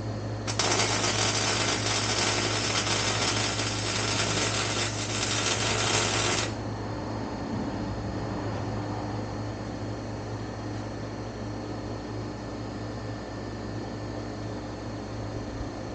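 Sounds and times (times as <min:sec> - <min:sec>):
constant low hum: 0:00.0 - 0:15.9
shop tool hissing crackle: 0:00.5 - 0:06.6.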